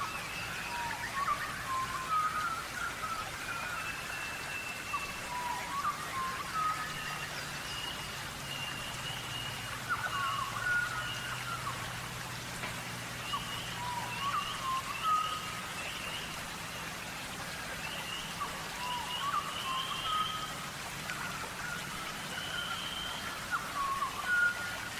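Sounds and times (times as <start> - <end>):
bird chirps and whistles: 18.2 - 20.5.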